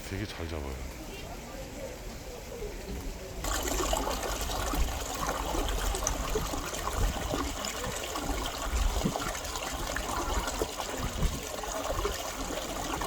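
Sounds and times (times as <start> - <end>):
stream water trickling: 3.4 - 13.0.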